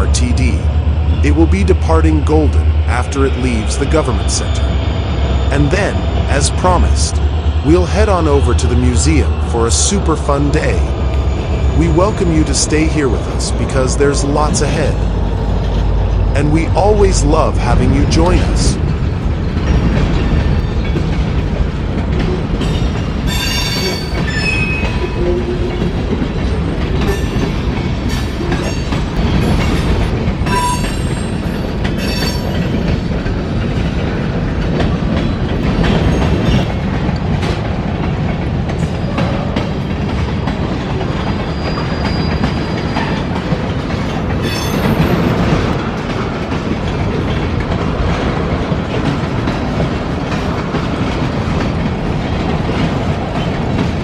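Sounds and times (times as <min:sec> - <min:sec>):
freight train cars rolling: 0:00.0 - 0:54.0
train wheels squealing: 0:03.9 - 0:06.5, 0:22.7 - 0:25.8, 0:41.1 - 0:43.4, 0:44.1 - 0:45.4.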